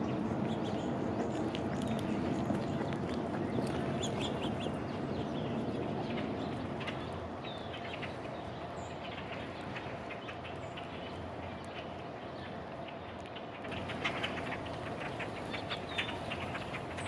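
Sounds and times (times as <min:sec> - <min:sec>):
birds chirping: 0:00.0 - 0:17.0
outdoor background hum: 0:00.0 - 0:17.0.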